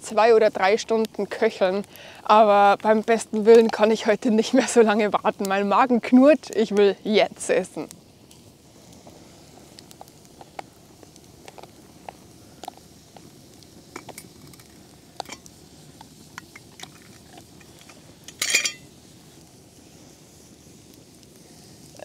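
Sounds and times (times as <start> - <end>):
short breathy hiss: 1.9 - 2.3, 8.2 - 16.3, 17.5 - 22.0
metal spoon clinking on cookware: 18.3 - 18.8.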